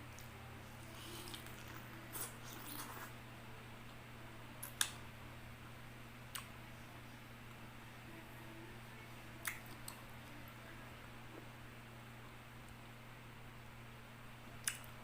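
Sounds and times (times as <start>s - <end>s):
steady low hum: 0.0s - 15.0s
wet mouth clicks eating: 4.6s - 5.0s, 9.4s - 10.0s, 14.6s - 15.0s.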